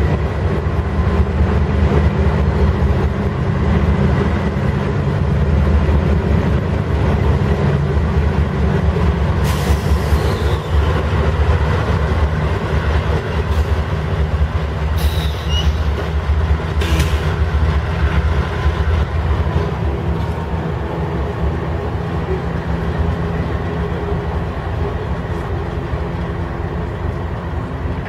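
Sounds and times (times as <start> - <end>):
diesel locomotives rumbling: 0.0 - 28.0
high scraping sounds from train: 9.3 - 20.8.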